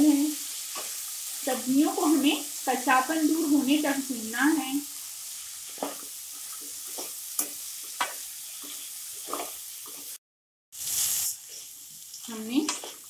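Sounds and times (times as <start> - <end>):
vegetables sizzling in hot oil: 0.0 - 10.2, 10.8 - 13.0
spatula scraping and knocking pan: 5.7 - 10.2.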